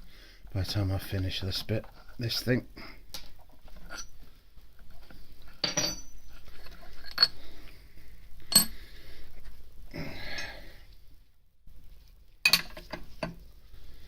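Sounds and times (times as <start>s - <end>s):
metal tools clinking: 5.6s - 7.4s, 12.5s - 13.0s.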